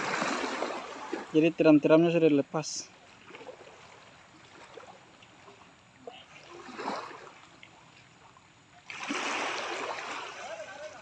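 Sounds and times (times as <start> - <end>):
loud rush of water: 0.0 - 1.6, 8.9 - 11.0.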